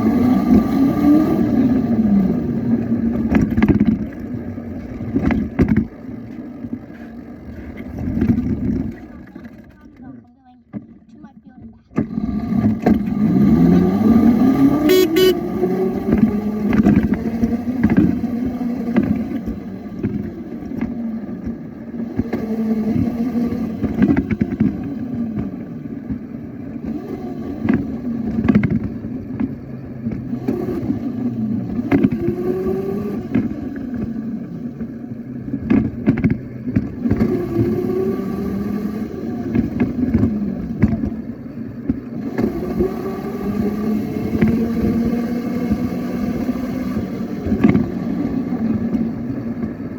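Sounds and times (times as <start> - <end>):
toy motorbike engine sound: 14.9 - 15.4.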